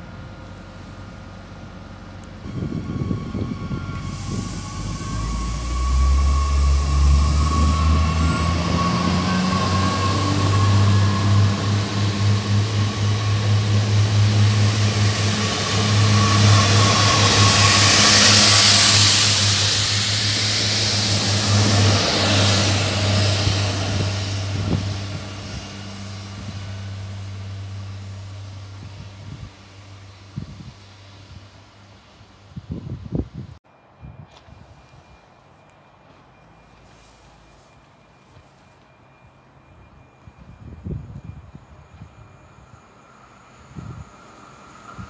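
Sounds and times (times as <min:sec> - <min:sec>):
train motor drone: 0:00.0 - 0:33.2
rush of train wheels and air: 0:00.0 - 0:45.0.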